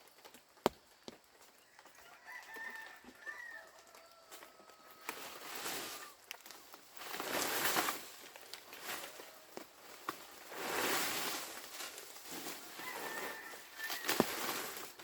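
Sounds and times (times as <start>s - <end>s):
rooster crowing: 1.8s - 6.1s, 12.7s - 14.6s
rustling noise: 2.3s - 15.0s.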